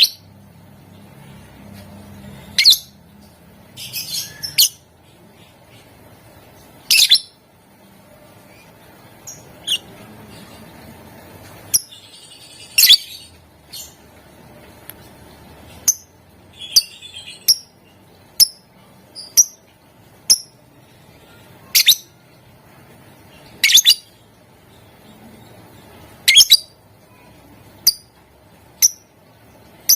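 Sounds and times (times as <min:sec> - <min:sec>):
lovebirds chirping: 0:01.0 - 0:07.5, 0:08.1 - 0:14.3, 0:15.1 - 0:22.3, 0:23.2 - 0:28.1.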